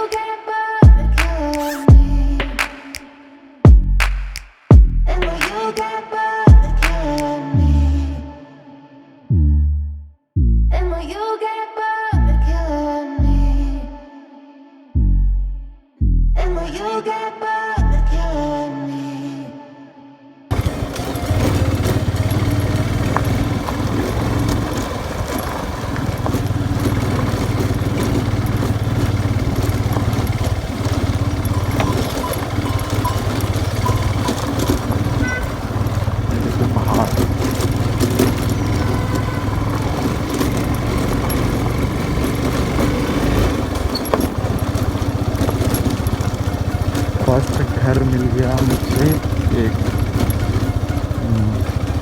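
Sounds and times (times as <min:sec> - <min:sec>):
motorcycle engine running: 0:00.8 - 0:02.6, 0:04.7 - 0:05.7, 0:06.5 - 0:08.0, 0:20.5 - 0:52.0
road noise: 0:20.5 - 0:52.0.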